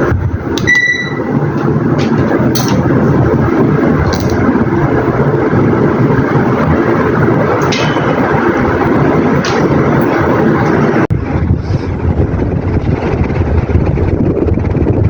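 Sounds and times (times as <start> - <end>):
ceiling fan rushing air: 0.0 - 15.0
short high beep: 0.6 - 1.3.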